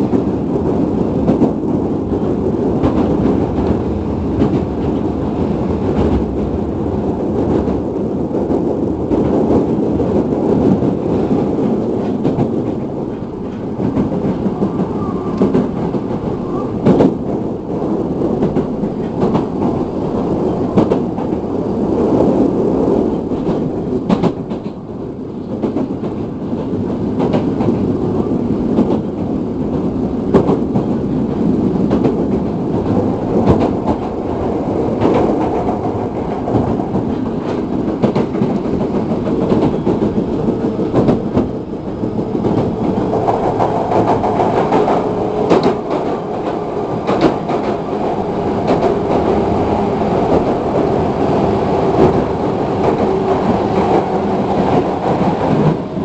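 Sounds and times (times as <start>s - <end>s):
train wheels rumbling on rails: 0.0s - 56.0s
sharp rail clacks: 28.7s - 56.0s.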